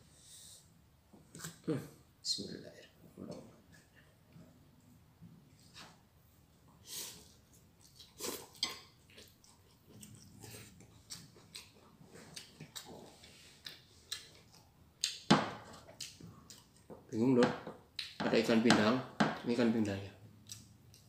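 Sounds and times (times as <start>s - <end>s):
person chewing: 6.9s - 16.9s, 20.4s - 21.0s.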